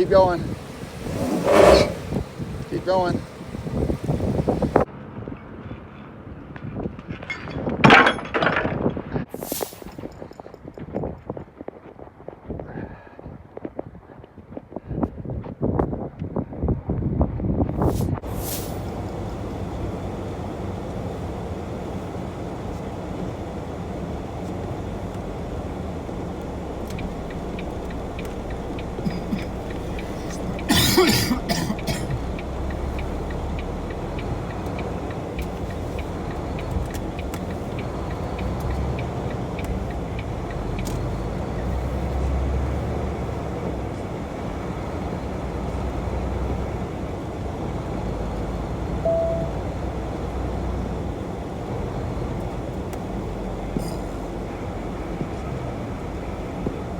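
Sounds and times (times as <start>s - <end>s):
truck engine low rumble: 0.0s - 4.9s, 17.5s - 56.9s
sharp cough-like noise: 29.0s - 32.3s
brief beep: 49.0s - 49.6s.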